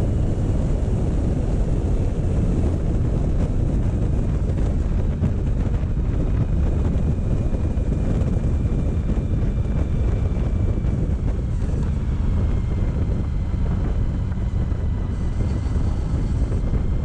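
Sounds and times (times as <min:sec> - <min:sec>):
motorcycle engine running: 0:00.0 - 0:17.0
wind rumble on microphone: 0:00.0 - 0:17.0
faint high whine: 0:08.9 - 0:17.0.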